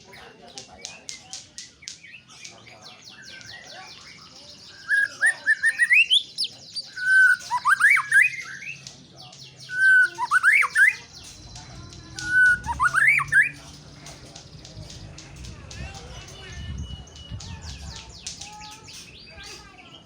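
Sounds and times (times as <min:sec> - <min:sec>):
bird whistled song: 0:01.8 - 0:15.2
faint high bird chirps: 0:01.9 - 0:20.0.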